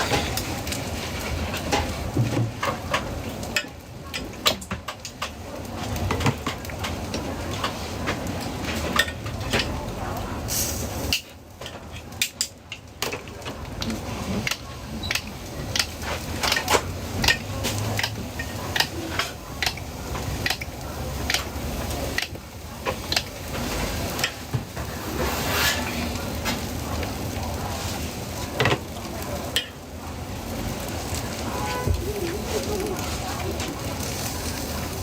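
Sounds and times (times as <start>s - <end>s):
food sizzling in a pan: 0.0s - 35.0s
metal utensil scraping pan: 23.6s - 26.2s.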